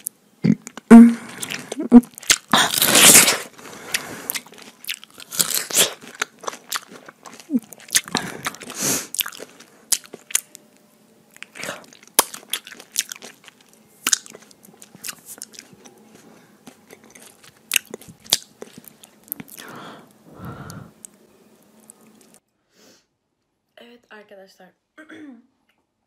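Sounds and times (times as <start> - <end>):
chewing with lip-smacking: 1.4 - 3.2, 3.8 - 10.5, 11.3 - 19.6.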